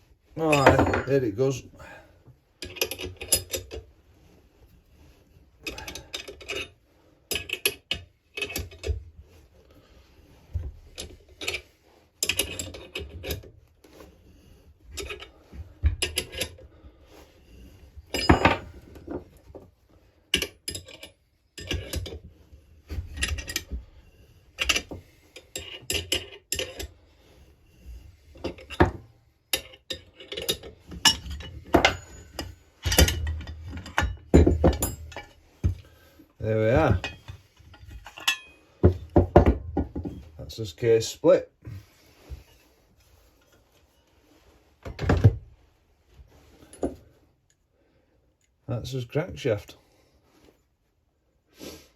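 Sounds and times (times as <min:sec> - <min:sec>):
metallic clinks and scrapes: 0:02.6 - 0:19.4, 0:20.3 - 0:39.2, 0:46.3 - 0:47.2.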